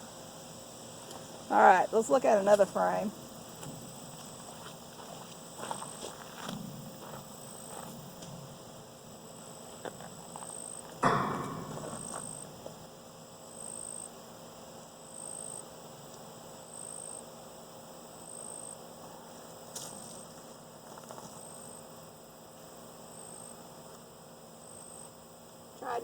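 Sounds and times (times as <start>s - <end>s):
honeybees humming: 0.0s - 11.2s.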